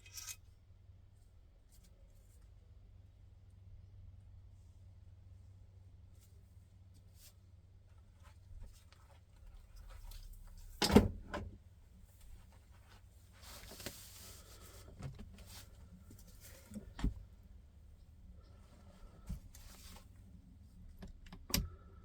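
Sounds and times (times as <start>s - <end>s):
short rustle: 12.1s - 17.4s.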